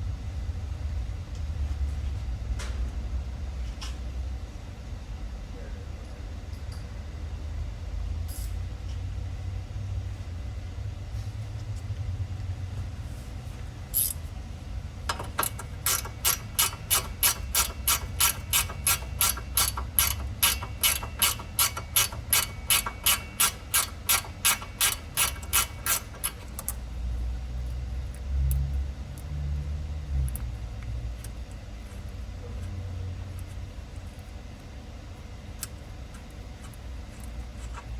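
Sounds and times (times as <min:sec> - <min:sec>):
hand ratchet clicking: 0:15.1 - 0:26.8.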